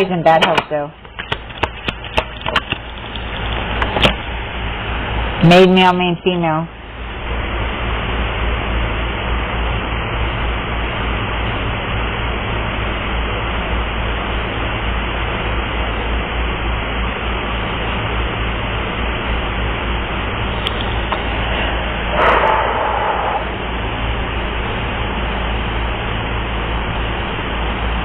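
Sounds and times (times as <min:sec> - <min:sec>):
steady rushing noise: 0:18.0 - 0:27.2
deep low rumble: 0:21.2 - 0:24.8.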